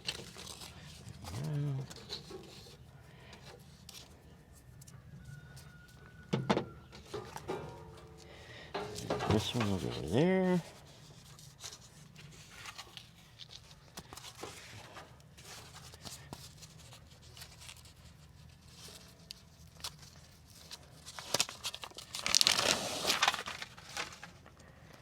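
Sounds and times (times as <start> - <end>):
foam rustling and crinkling: 0.0 - 6.0, 8.8 - 25.0
foam tearing: 20.7 - 24.2.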